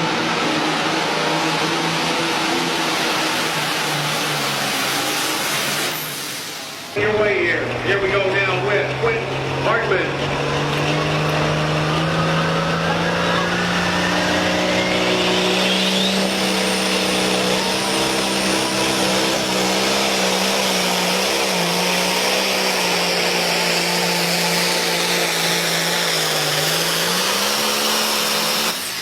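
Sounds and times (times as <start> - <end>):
tractor engine at high revs: 0.0 - 29.0
whistle rising in pitch: 13.1 - 18.8.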